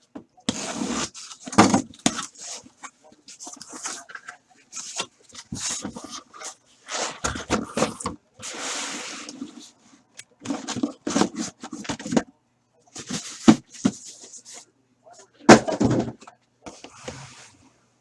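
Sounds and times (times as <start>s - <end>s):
cardboard rasp: 0.5s - 2.7s
cardboard scraping and rustling: 0.5s - 2.7s, 15.5s - 17.6s.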